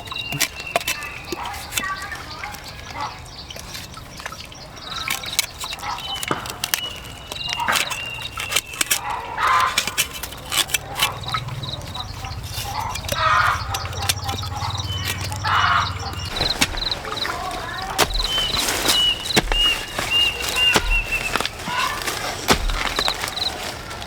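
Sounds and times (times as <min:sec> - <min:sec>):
indistinct voices: 0:10.8 - 0:24.0
sharp knocks and clatter: 0:16.2 - 0:24.0.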